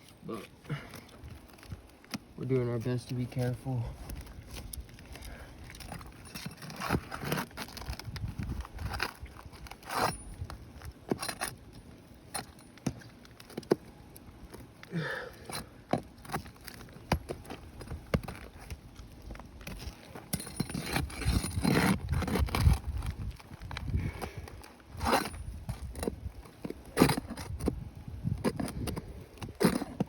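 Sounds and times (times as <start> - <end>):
shingles crackling: 0.0 - 27.8
metal bar scraping under shingles: 4.3 - 11.6, 19.7 - 30.0.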